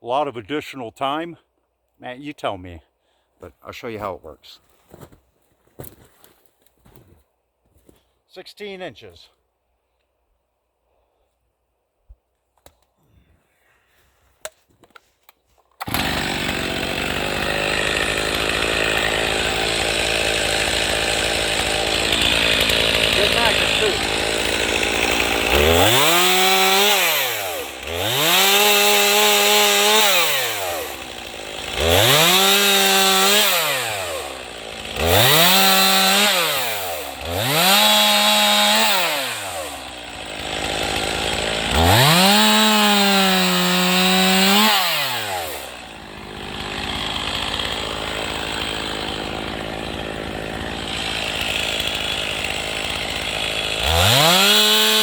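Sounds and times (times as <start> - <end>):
chainsaw revving and idling: 15.8 - 55.0.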